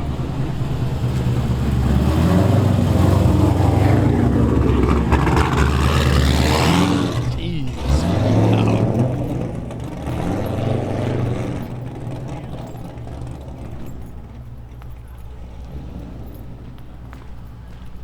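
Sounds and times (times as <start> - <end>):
car engine running at low revs: 0.0 - 18.0.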